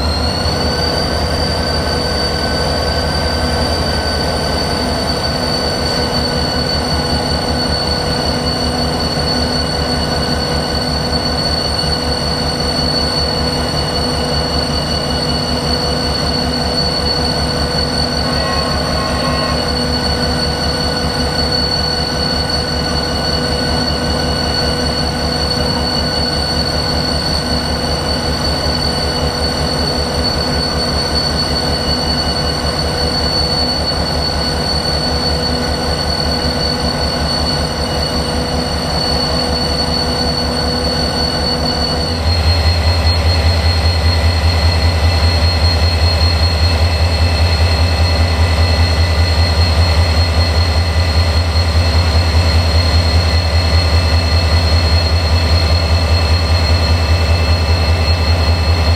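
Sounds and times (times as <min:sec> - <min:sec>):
locomotive diesel engine throbbing: 0:00.0 - 0:12.7, 0:16.0 - 0:30.7.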